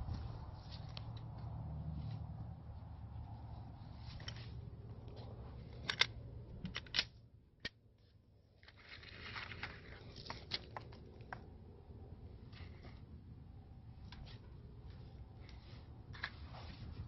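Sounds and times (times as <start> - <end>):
low steady hum: 0.0 - 17.0
rustling: 8.6 - 11.3.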